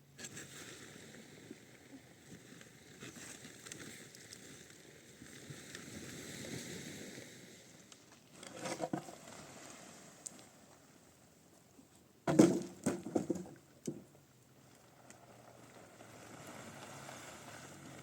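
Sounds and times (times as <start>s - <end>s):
rustling and scraping: 8.1s - 9.9s
knocks: 12.3s - 14.0s.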